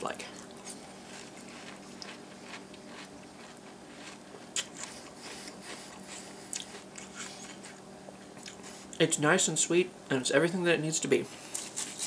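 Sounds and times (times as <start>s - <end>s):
faint steady hum: 0.0s - 12.0s
person chewing crunchy cereal: 0.2s - 7.8s.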